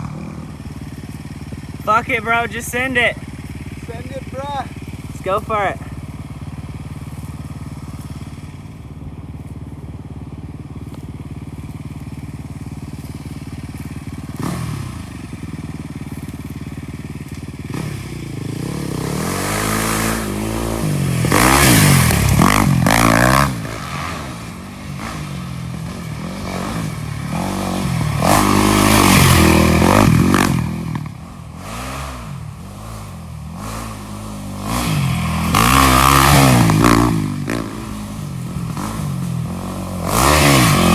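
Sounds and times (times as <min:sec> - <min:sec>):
off-road vehicle engine revving: 0:13.7 - 0:16.6, 0:17.3 - 0:40.9.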